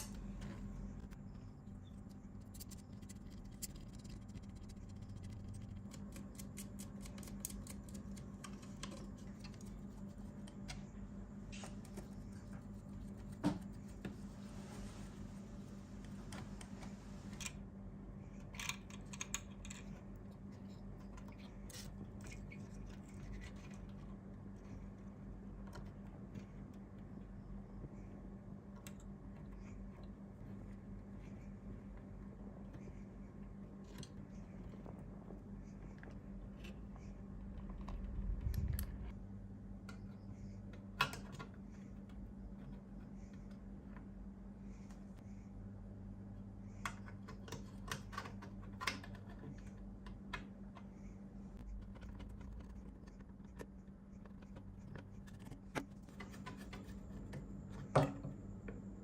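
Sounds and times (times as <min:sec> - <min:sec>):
steady low hum: 0:00.0 - 0:59.0
low rumble: 0:37.0 - 0:39.3.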